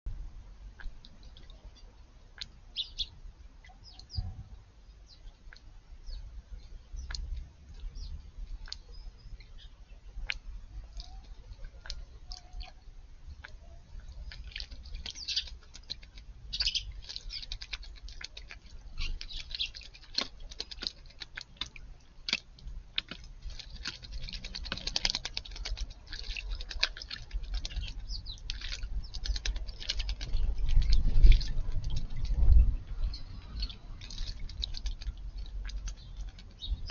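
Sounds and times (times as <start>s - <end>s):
birds splashing water: 0.8s - 4.2s, 5.1s - 36.9s
faint bird chirps: 2.7s - 5.4s, 6.0s - 10.2s, 10.8s - 15.9s, 16.5s - 17.9s.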